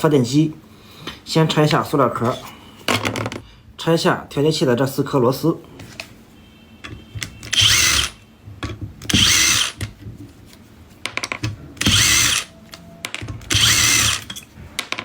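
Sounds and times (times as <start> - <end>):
electric screwdriver whining: 7.5 - 8.2, 9.1 - 9.8, 11.8 - 12.5, 13.5 - 14.3.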